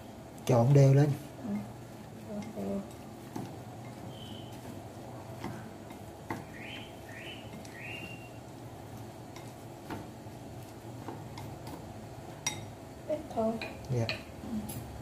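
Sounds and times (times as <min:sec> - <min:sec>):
bird chirping: 0:04.1 - 0:04.6, 0:06.4 - 0:08.4.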